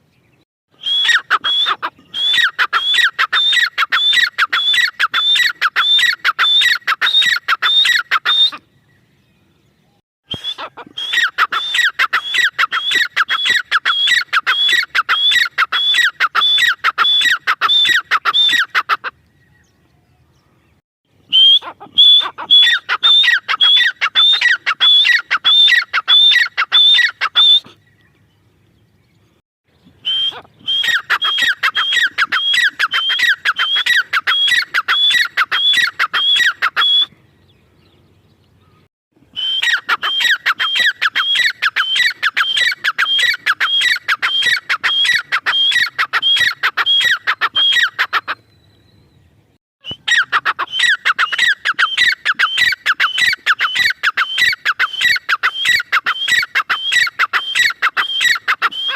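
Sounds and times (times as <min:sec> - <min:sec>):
francolin calling: 0:00.8 - 0:09.0, 0:21.2 - 0:28.1, 0:30.0 - 0:37.9, 0:38.6 - 0:48.9, 0:49.8 - 0:58.9.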